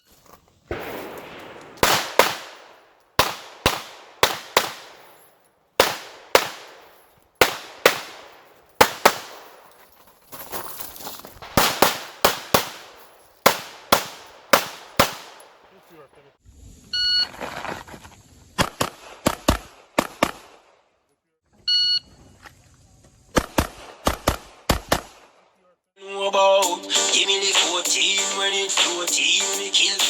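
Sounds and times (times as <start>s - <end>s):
pistol shots: 0.7s - 9.9s, 11.4s - 15.9s.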